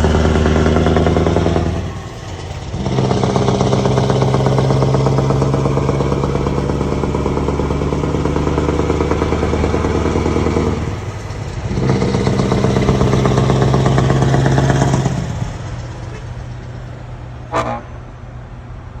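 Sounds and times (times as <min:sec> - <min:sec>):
truck engine under load: 0:00.0 - 0:19.0
short sharp high sound: 0:17.5 - 0:18.0.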